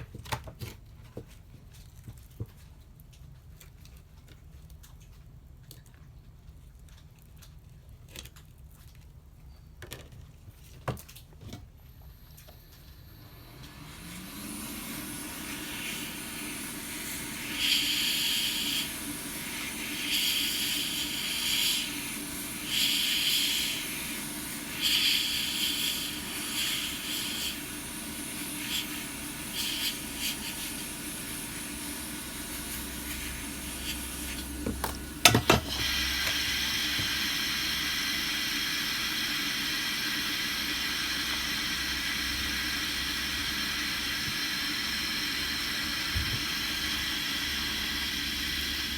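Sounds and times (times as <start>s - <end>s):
hot air tool hissing: 13.1s - 48.9s.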